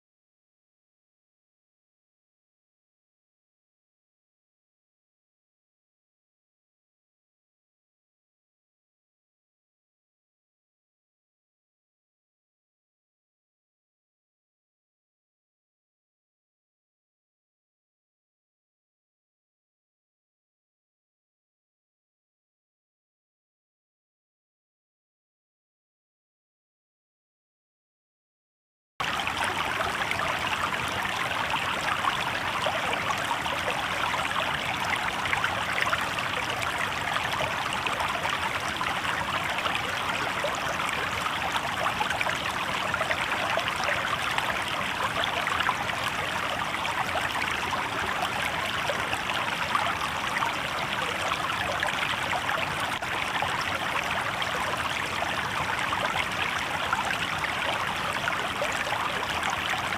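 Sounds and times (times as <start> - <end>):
river water babbling over stones: 29.0 - 59.9.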